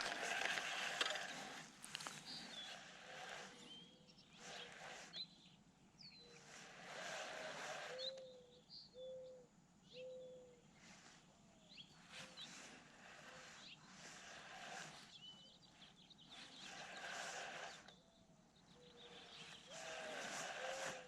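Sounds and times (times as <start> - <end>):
low even-pitched bird notes: 7.9 - 10.7.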